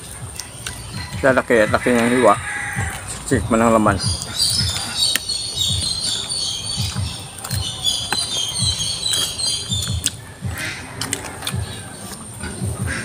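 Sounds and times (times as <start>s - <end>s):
birds chirping: 0.0s - 13.0s
chewing food: 0.3s - 0.9s, 4.2s - 13.0s.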